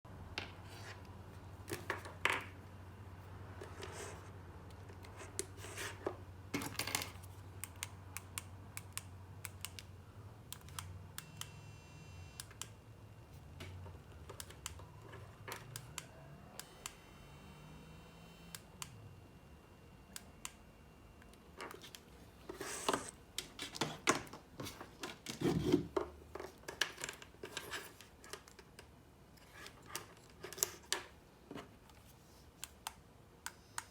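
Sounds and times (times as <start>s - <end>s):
short electronic buzzes: 16.5s - 19.2s.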